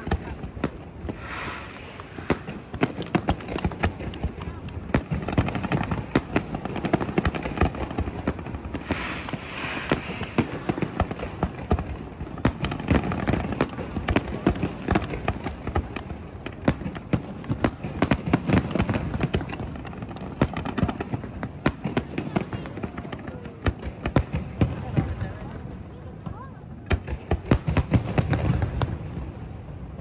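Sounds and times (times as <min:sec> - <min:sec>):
fireworks bangs and crackles: 0:00.0 - 0:30.0
firework hissing burst: 0:01.0 - 0:03.3, 0:08.6 - 0:11.6.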